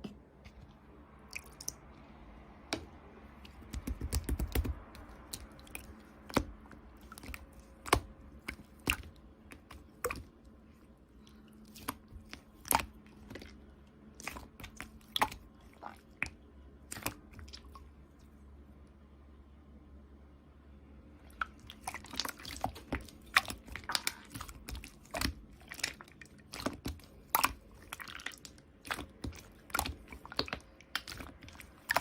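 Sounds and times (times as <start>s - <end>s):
slime squeezed with wet pops: 2.8s - 10.3s, 21.3s - 32.0s.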